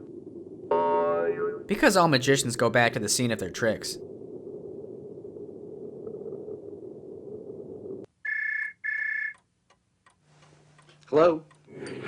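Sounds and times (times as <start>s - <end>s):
low steady rumbling: 0.0s - 8.1s.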